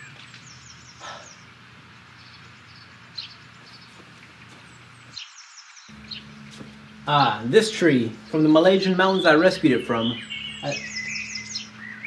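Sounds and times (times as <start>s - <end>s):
faint bird chirps: 0.0s - 7.0s, 8.2s - 12.0s
low steady hum: 5.9s - 12.0s.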